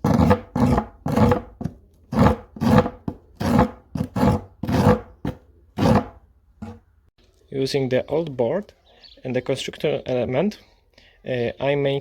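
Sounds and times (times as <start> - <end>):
hand file rasping on plywood: 0.0 - 6.8.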